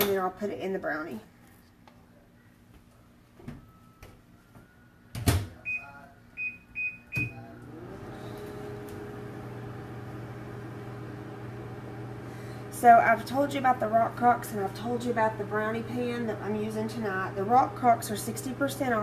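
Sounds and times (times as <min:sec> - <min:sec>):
microwave humming: 0:06.4 - 0:19.0.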